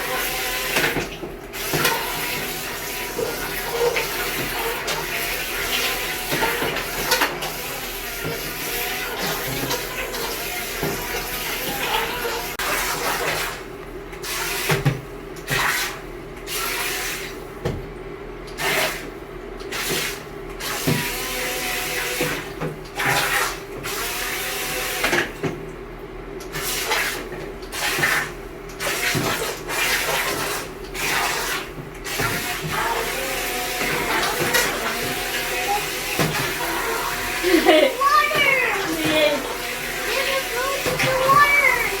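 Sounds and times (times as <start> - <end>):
toy boat propellers splashing water: 0.0 - 13.6, 26.5 - 42.0.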